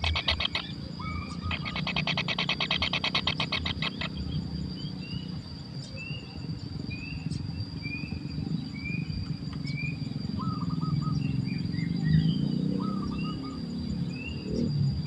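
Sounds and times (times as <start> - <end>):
trilled bird call: 0.0 - 8.1, 8.7 - 11.9
high insect-like drone: 0.0 - 15.0.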